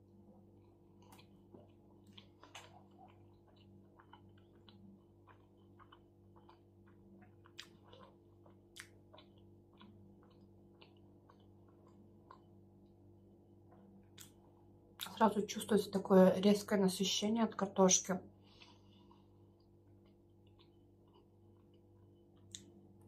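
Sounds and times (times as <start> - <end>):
wet chewing: 0.6 - 12.6.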